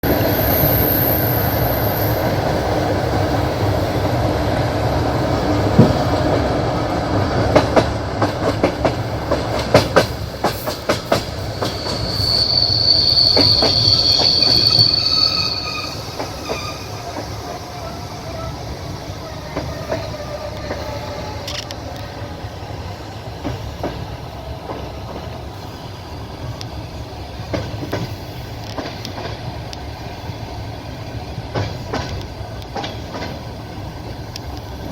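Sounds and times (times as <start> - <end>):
high squeal from train wheels: 0.0 - 4.2, 9.0 - 34.9
train wheels rumbling on rails: 0.0 - 34.9
wheels clicking over rail joints: 5.1 - 12.2, 26.4 - 29.9, 31.4 - 34.9.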